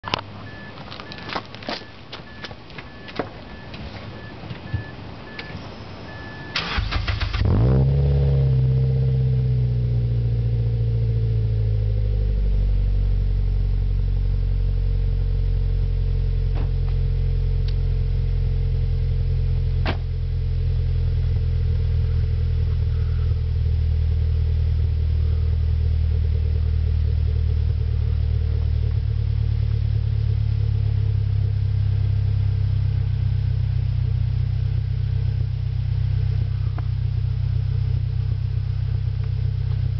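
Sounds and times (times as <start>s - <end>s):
car engine cranking and idling: 0.0s - 39.9s
high beep: 0.4s - 6.7s.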